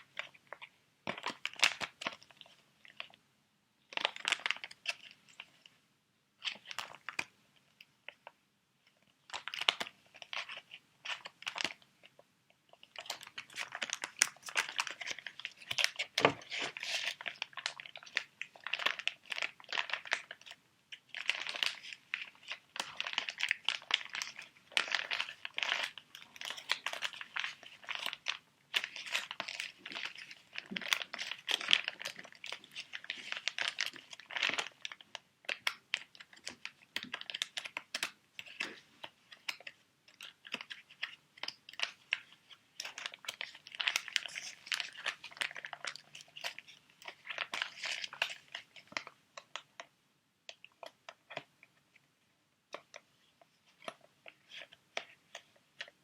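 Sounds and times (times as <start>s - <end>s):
plastic packets crinkling: 3.9s - 5.5s, 9.3s - 49.8s.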